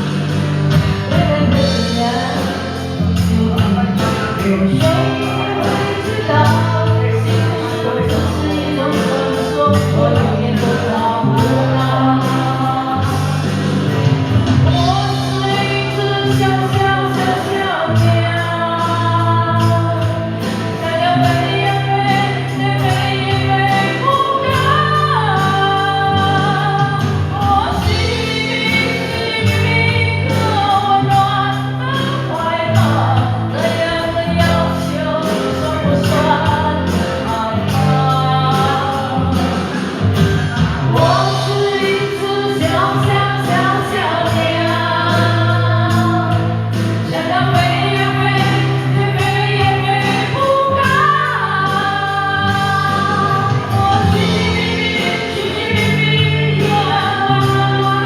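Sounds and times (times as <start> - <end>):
live pop song with band: 0.0 - 58.0.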